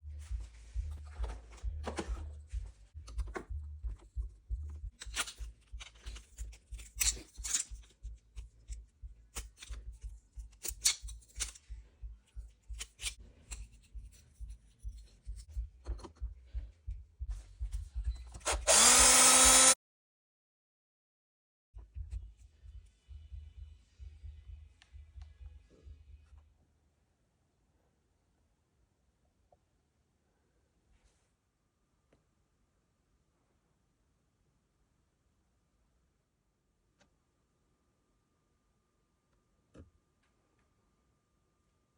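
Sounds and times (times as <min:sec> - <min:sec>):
parts and tools clicking: 0:04.9 - 0:14.3
small power tool spinning up: 0:18.4 - 0:19.8.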